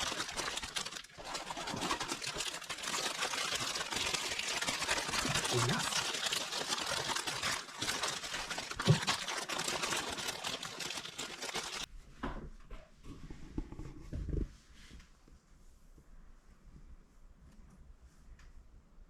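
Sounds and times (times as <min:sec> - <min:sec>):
plastic packaging crinkling: 0:00.0 - 0:11.9.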